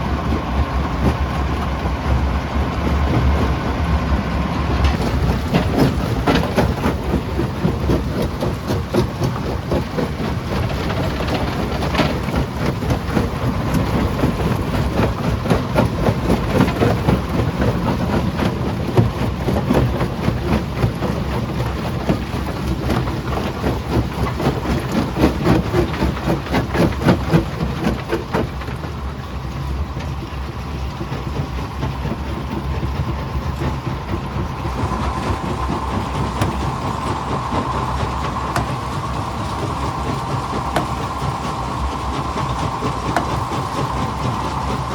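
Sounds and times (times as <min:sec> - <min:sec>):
rock crusher rumbling: 0:00.0 - 0:44.9
steady whine: 0:29.1 - 0:44.9.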